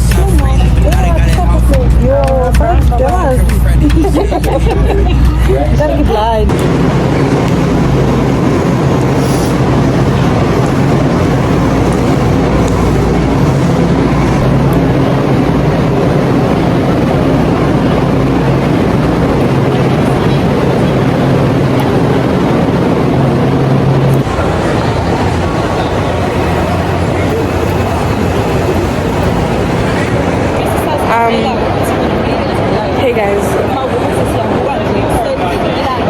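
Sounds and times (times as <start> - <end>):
low hum: 0.0 - 35.4
train rumbling: 0.0 - 36.0.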